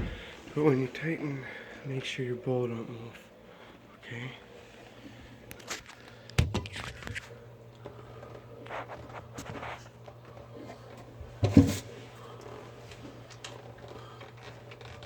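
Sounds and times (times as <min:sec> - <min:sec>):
steady low hum: 0:00.0 - 0:15.0
knocks and scrapes of sink parts: 0:10.6 - 0:11.9.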